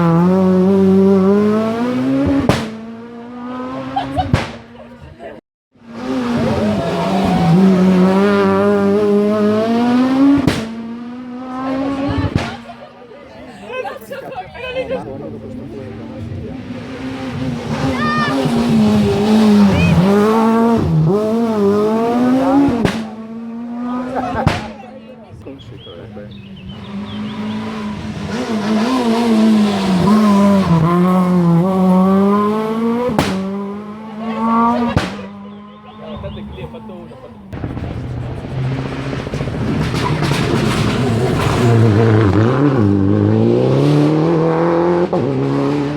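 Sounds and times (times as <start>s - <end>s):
rally car engine at full throttle: 0.0s - 13.8s, 14.6s - 45.9s
sharp bang: 37.6s - 42.2s.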